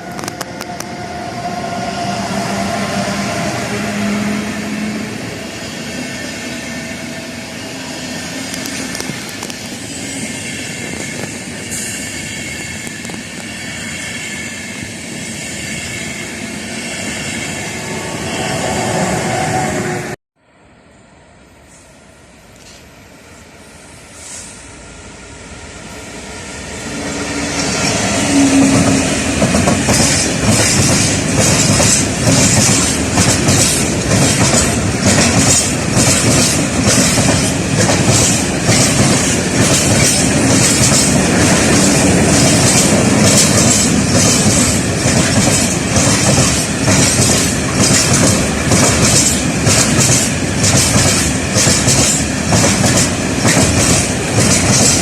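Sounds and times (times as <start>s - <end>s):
train passing: 0.0s - 55.0s
wheels clacking over rail joints: 28.8s - 55.0s.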